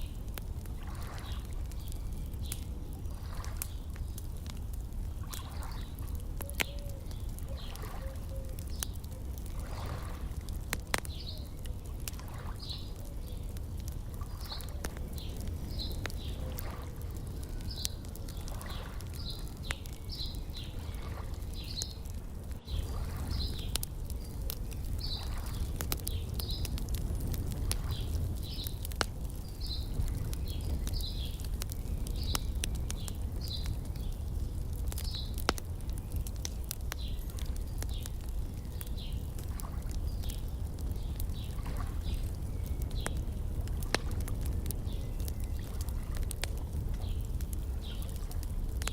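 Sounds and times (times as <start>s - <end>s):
wood fire crackling and popping: 0.0s - 48.9s
bird chirping: 11.1s - 11.8s.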